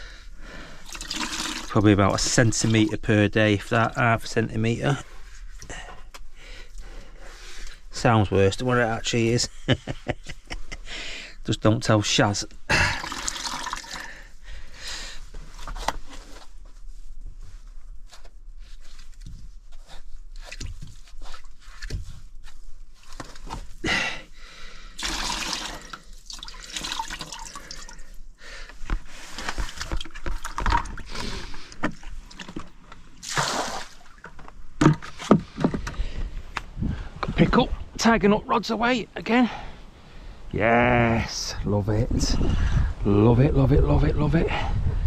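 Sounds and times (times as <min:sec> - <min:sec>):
water dripping and trickling: 0:00.8 - 0:03.1, 0:12.8 - 0:14.1, 0:25.0 - 0:28.2
water splashes: 0:25.0 - 0:28.0, 0:33.2 - 0:34.3.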